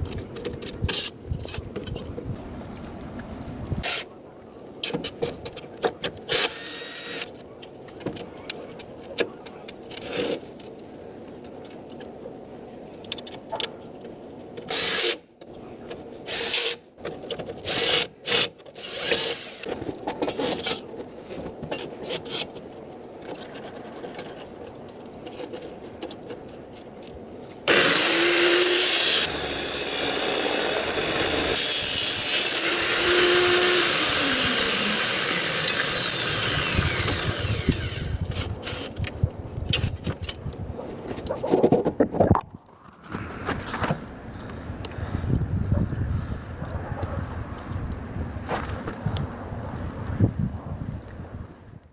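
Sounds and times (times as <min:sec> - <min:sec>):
angle grinder running: 0:27.7 - 0:38.8.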